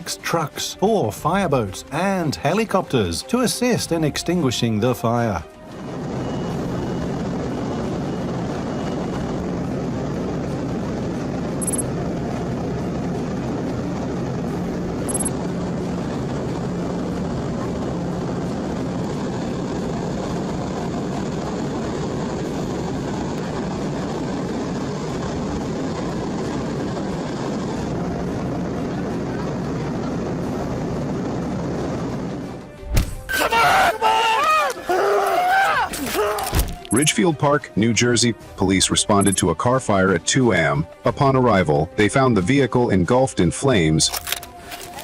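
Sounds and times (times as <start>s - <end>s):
helicopter rotor drone: 3.8s - 32.8s.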